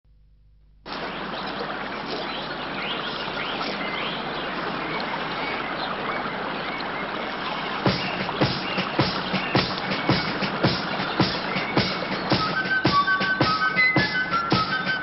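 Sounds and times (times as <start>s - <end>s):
birds chirping: 0.9s - 15.0s
flowing water: 0.9s - 15.0s
sharp knocks: 7.9s - 13.6s.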